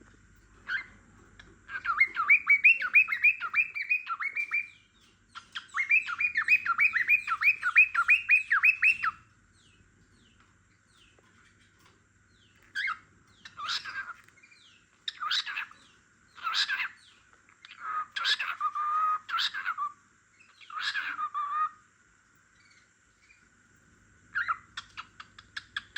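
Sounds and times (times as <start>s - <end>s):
cockatiel chirping: 0.6s - 9.7s, 12.6s - 21.8s, 24.3s - 25.9s.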